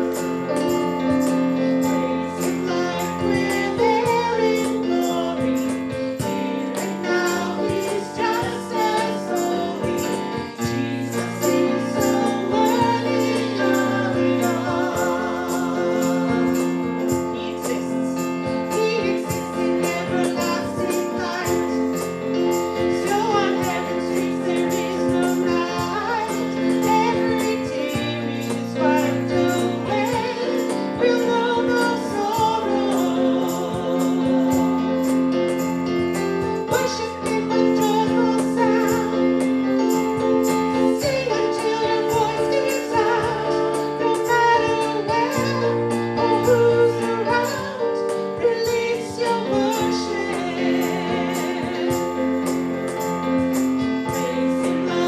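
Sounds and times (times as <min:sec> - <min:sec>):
keyboard: 0:00.0 - 0:55.0
voices singing along: 0:02.3 - 0:22.0, 0:22.8 - 0:35.2, 0:40.8 - 0:52.6
woman singing: 0:02.4 - 0:21.8, 0:23.0 - 0:34.8, 0:41.0 - 0:52.0.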